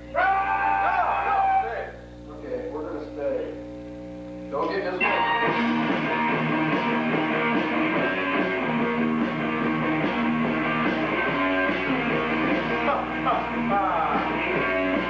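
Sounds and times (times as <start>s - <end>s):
rock band playing: 4.7s - 15.0s
bending guitar notes: 5.0s - 15.0s.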